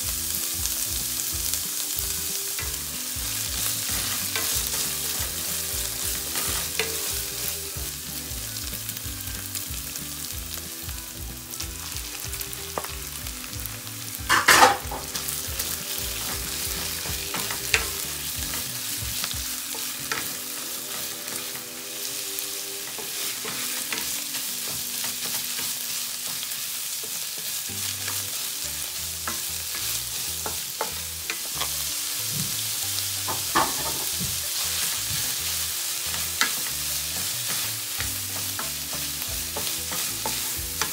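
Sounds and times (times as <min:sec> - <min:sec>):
food sizzling in oil: 0:00.0 - 0:40.9
spatula knocking pan: 0:14.2 - 0:20.4, 0:33.2 - 0:34.4.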